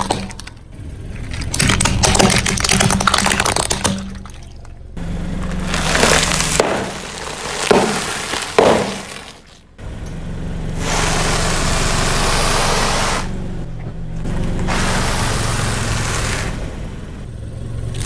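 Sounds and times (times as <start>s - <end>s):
low engine hum: 0.0s - 18.0s
tyre crushing brittle objects: 5.3s - 9.7s.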